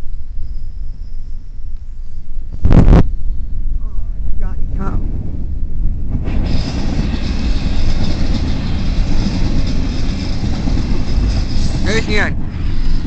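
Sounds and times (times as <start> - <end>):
train wheels rumbling on rail: 4.6 - 13.0
wheels hissing and ringing: 6.3 - 13.0.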